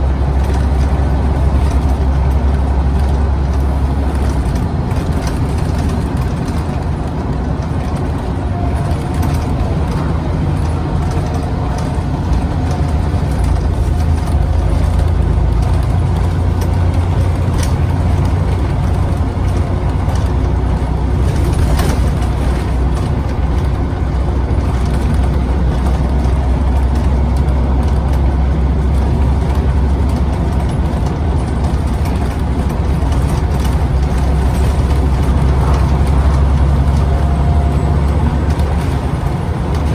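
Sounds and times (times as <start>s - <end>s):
bus diesel engine running: 0.0s - 39.9s
road noise: 0.0s - 39.9s.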